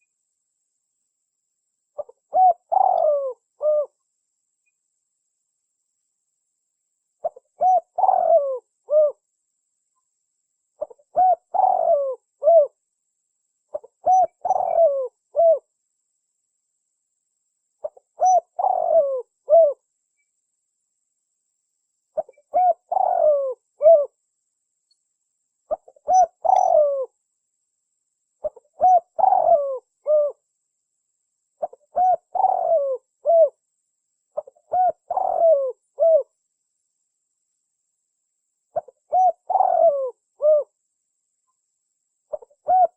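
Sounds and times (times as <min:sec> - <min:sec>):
dove cooing: 0:02.0 - 0:04.0, 0:07.2 - 0:09.2, 0:10.8 - 0:12.8, 0:13.7 - 0:15.7, 0:17.8 - 0:19.8, 0:22.2 - 0:24.2, 0:25.7 - 0:27.2, 0:28.4 - 0:30.4, 0:31.6 - 0:33.6, 0:34.4 - 0:36.4, 0:38.8 - 0:40.8, 0:42.3 - 0:42.9.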